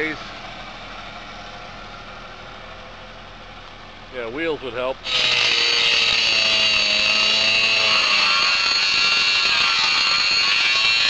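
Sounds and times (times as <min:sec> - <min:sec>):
power tool whining: 0:05.0 - 0:11.0.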